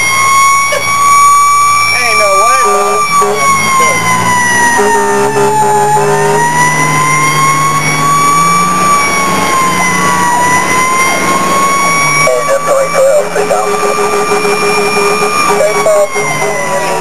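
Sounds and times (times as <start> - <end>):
fire engine siren wailing: 0.0 - 17.0
truck engine running: 0.0 - 17.0.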